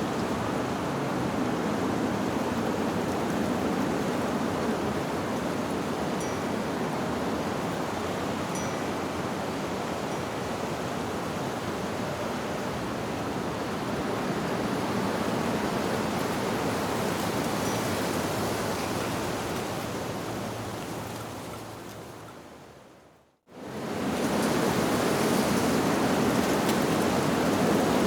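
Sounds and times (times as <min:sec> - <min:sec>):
wind through tree leaves: 0:00.0 - 0:28.0
faint wind-chime ping: 0:06.2 - 0:06.6, 0:08.5 - 0:09.2, 0:17.6 - 0:18.0.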